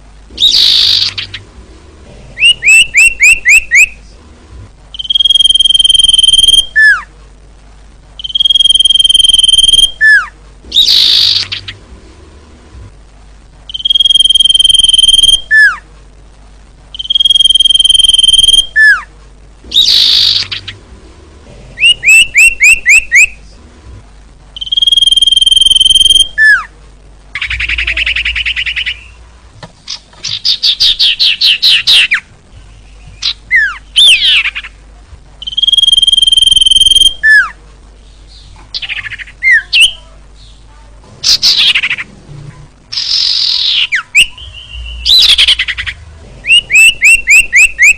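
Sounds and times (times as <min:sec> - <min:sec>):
bird chattering and trilling: 0:00.3 - 0:01.5, 0:02.4 - 0:04.0, 0:04.9 - 0:07.1, 0:08.2 - 0:11.8, 0:13.7 - 0:15.8, 0:16.9 - 0:19.1, 0:19.7 - 0:20.8, 0:24.6 - 0:26.7, 0:27.3 - 0:29.2, 0:29.8 - 0:34.8, 0:35.4 - 0:40.6, 0:41.2 - 0:42.1, 0:42.9 - 0:47.9
bird whistling: 0:00.4 - 0:01.4, 0:02.4 - 0:04.0, 0:05.0 - 0:07.1, 0:08.2 - 0:11.8, 0:13.7 - 0:15.8, 0:17.0 - 0:19.1, 0:19.7 - 0:20.8, 0:21.8 - 0:23.4, 0:24.6 - 0:26.7, 0:27.4 - 0:29.2, 0:35.4 - 0:37.6, 0:43.0 - 0:47.9.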